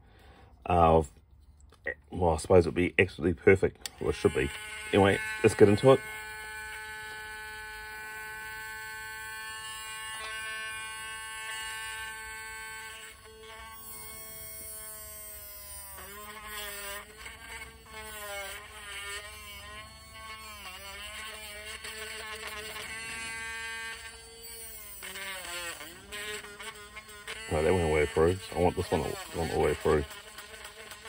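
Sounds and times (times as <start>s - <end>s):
electric drill drilling plastic: 3.9s - 31.0s.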